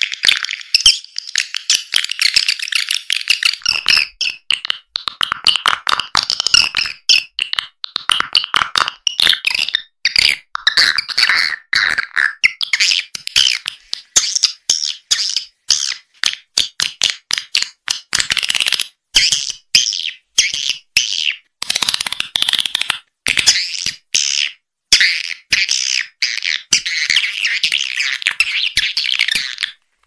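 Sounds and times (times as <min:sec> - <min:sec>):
swiftlet twittering chirps and clicks: 0:00.0 - 0:04.9, 0:12.4 - 0:17.7.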